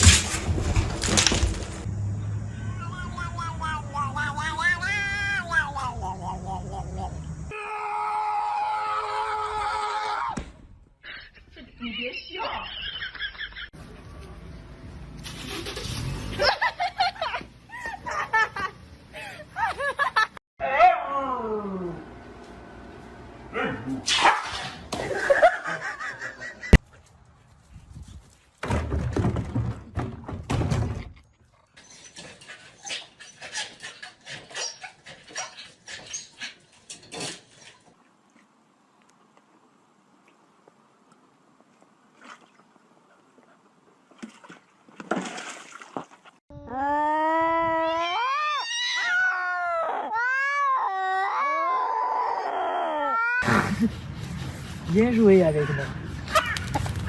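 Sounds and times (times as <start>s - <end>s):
loud rustling and thumping: 0.0s - 1.8s, 28.6s - 31.2s
cat yowling: 47.9s - 53.4s.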